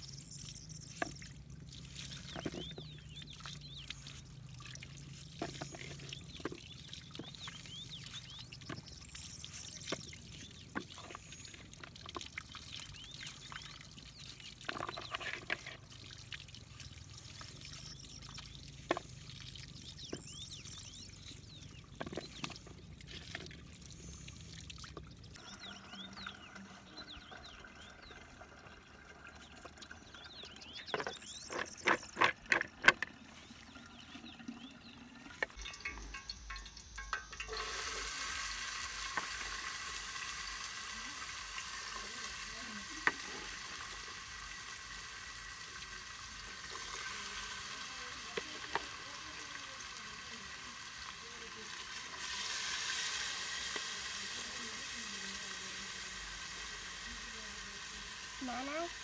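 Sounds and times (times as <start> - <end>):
food sizzling in frying pan: 35.5 - 59.0.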